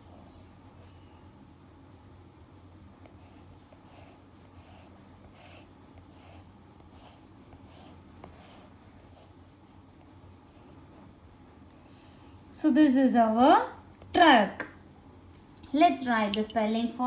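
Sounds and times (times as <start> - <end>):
low steady hum: 0.0 - 17.0
pen scratching on paper: 3.0 - 11.2.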